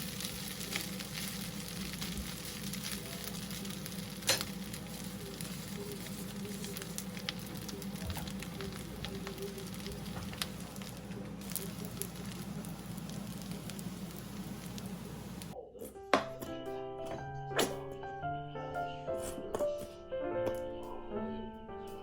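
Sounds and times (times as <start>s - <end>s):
food sizzling in a pan: 0.0s - 15.6s.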